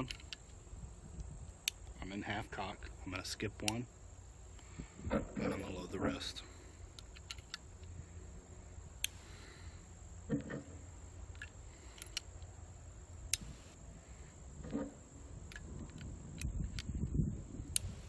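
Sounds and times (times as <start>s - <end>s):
crickets droning: 0.0s - 18.0s
revolver metallic clicks: 1.2s - 2.0s, 3.6s - 3.9s, 6.9s - 8.0s, 9.0s - 9.4s, 11.3s - 12.6s, 13.2s - 13.7s, 14.6s - 17.1s, 17.7s - 18.0s.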